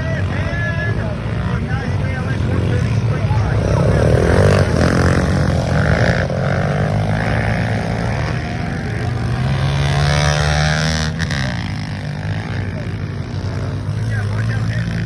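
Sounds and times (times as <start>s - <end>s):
pit bike engines revving: 0.0s - 15.0s.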